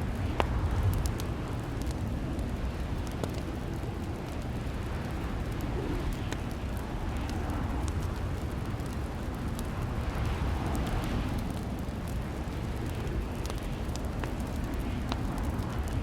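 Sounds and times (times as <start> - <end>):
fireplace crackling: 0.0 - 16.0.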